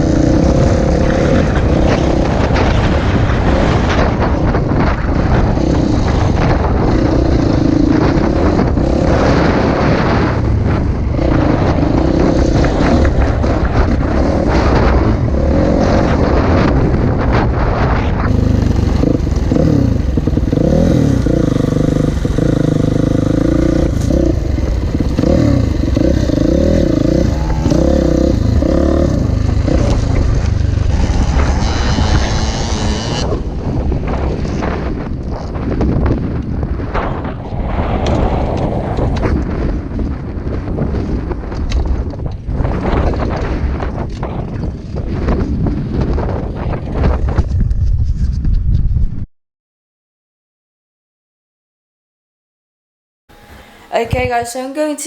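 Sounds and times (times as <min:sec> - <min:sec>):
dirt bike engine revving: 0:00.0 - 0:04.3, 0:18.2 - 0:33.4, 0:53.3 - 0:54.6.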